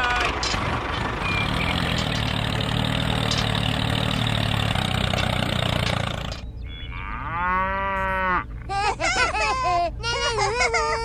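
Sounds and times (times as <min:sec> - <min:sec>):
tractor engine running: 0:00.0 - 0:06.9
drawn-out low call: 0:00.0 - 0:08.7.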